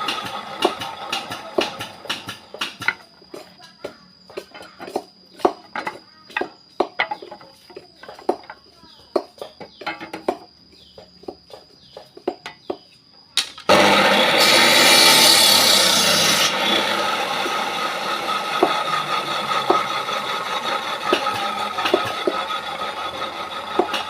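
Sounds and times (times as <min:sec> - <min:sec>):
electric saw cutting wood: 0:00.0 - 0:02.9, 0:13.7 - 0:24.0.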